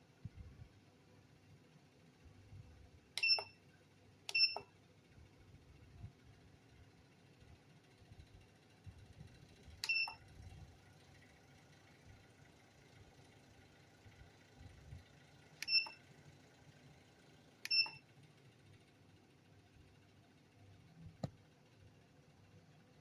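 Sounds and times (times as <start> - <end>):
short electronic beeps: 3.2 - 3.6, 4.3 - 4.6, 9.8 - 10.2, 15.6 - 16.0, 17.7 - 18.0.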